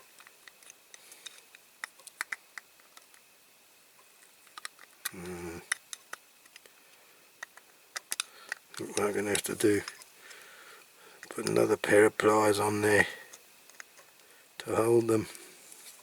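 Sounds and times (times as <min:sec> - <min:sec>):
person humming: 0:05.1 - 0:05.7.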